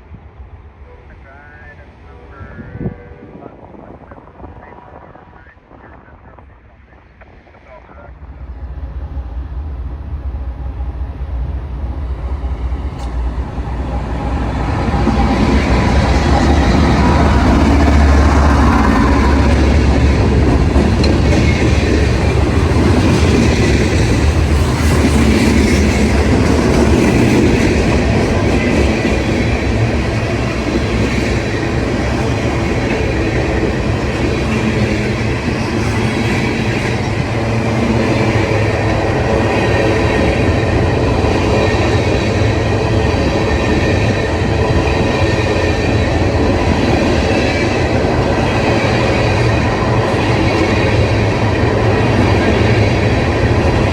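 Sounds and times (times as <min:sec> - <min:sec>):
heavy low rumble: 0:07.7 - 0:28.5
train wheels on rails: 0:08.3 - 0:53.9.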